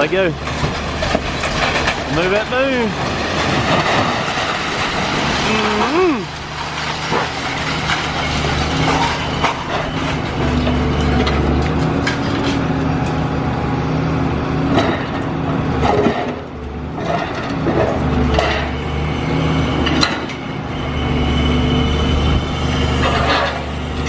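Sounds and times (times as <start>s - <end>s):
debris knocking and cracking: 0.0s - 12.7s, 14.7s - 18.8s
excavator diesel engine: 0.0s - 24.0s.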